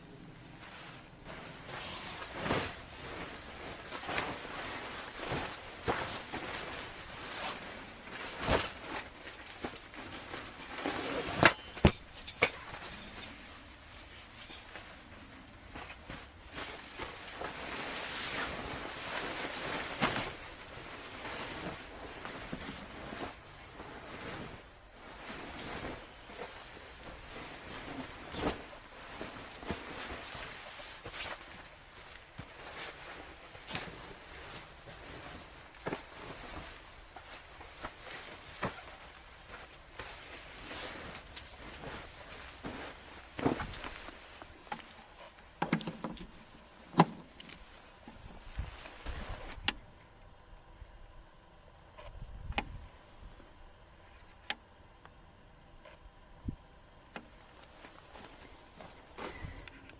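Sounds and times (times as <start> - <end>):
rustling and handling noise: 0.0 - 50.5, 55.7 - 59.9
wind noise: 52.0 - 53.4.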